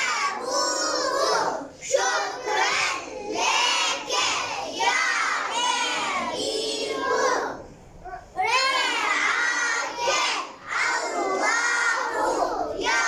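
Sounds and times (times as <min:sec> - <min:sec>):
children reading aloud in unison: 0:00.0 - 0:13.0.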